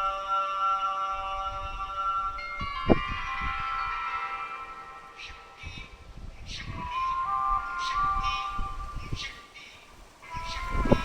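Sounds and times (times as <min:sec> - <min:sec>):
bell-like chime tones: 0:00.0 - 0:06.0.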